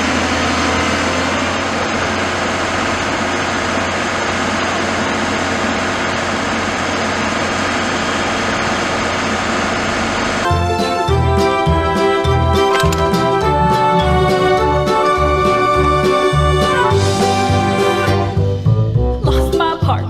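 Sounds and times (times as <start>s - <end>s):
road noise: 0.0s - 18.2s
heavy vehicle engine humming: 0.0s - 19.2s.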